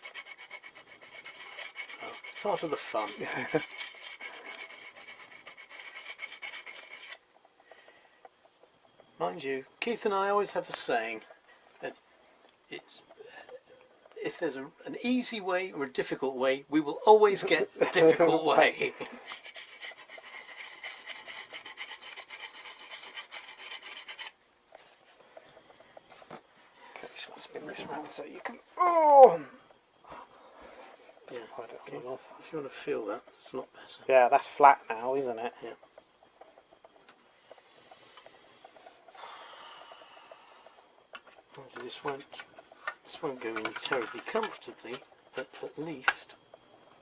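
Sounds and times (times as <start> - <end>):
abrasive rubbing on metal: 0.0 - 7.2, 19.1 - 24.4
hand file rasping on metal: 0.0 - 7.2, 19.2 - 24.4.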